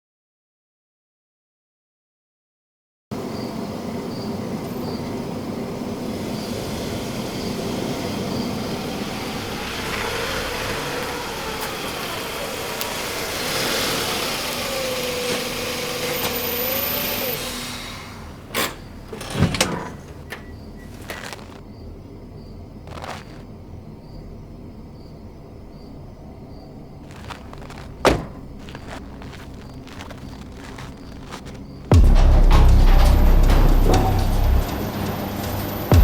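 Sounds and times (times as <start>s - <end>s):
engine running: 3.9s - 19.2s, 27.0s - 36.0s
sharp knocks: 28.0s - 28.7s, 30.7s - 36.0s.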